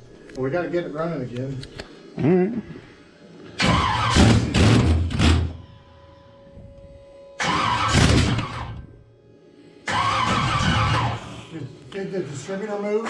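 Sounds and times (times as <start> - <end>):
car engine starter cranking: 3.6 - 5.6, 7.4 - 8.8, 9.9 - 11.3.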